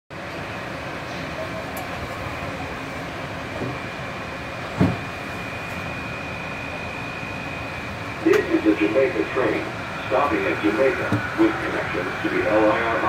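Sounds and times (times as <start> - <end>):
train rumbling with high whine: 0.1 - 13.0
thump: 4.8 - 5.0.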